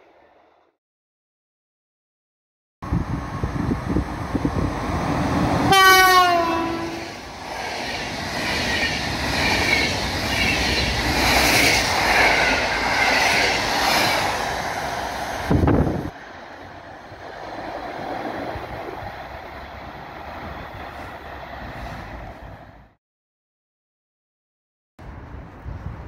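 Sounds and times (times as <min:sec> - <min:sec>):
train passing rumble and rush: 0:02.8 - 0:23.0, 0:25.0 - 0:26.0
locomotive horn: 0:05.7 - 0:07.2.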